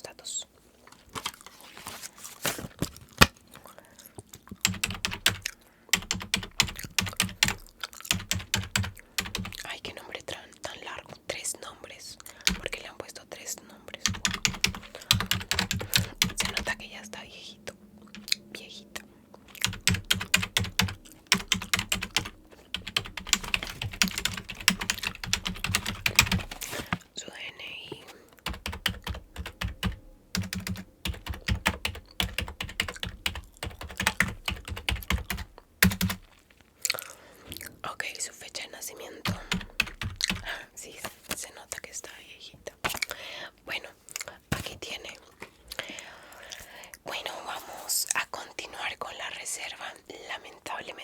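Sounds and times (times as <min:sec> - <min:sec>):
typing on computer keyboard: 0:04.5 - 0:09.7, 0:12.4 - 0:12.8, 0:14.0 - 0:16.9, 0:19.5 - 0:27.0, 0:28.4 - 0:36.3, 0:39.2 - 0:40.6.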